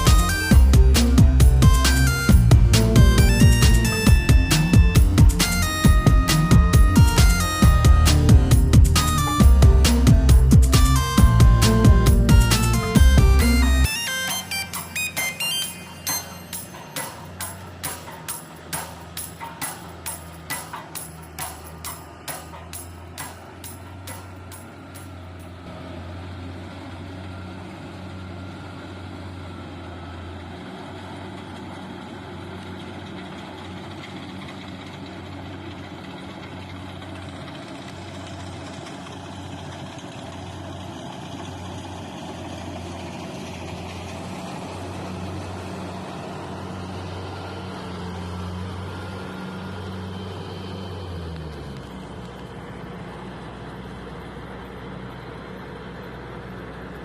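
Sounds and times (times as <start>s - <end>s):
combine harvester engine running: 0.0s - 57.0s.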